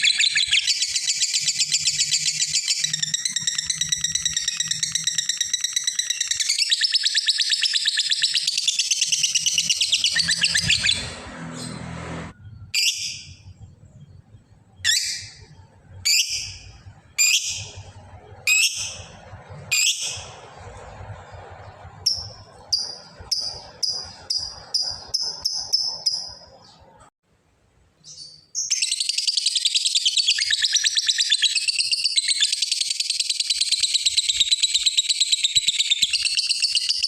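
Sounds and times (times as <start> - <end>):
lovebird chattering trill: 0.0 - 11.1, 22.1 - 26.7.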